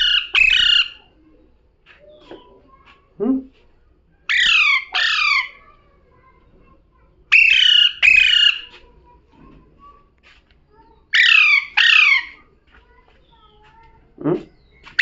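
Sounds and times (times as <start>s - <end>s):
parrot screeching: 0.0s - 1.0s, 4.3s - 5.6s, 7.3s - 8.7s, 11.1s - 12.4s.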